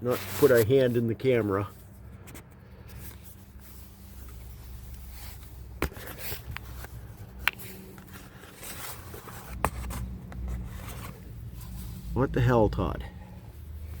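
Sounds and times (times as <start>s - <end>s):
exhaust pipe scraping: 0.0s - 14.0s.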